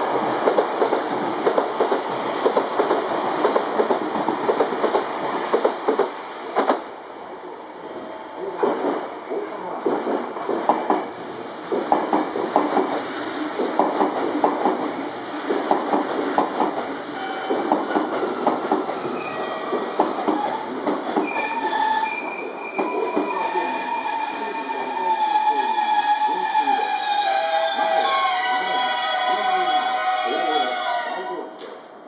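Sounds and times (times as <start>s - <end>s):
train wheels clicking over rail joints: 0.4s - 6.8s, 8.6s - 21.5s.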